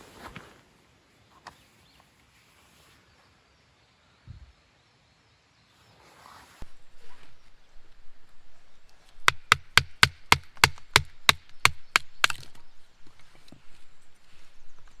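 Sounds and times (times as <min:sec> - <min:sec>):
axe chopping firewood: 0:06.6 - 0:15.0.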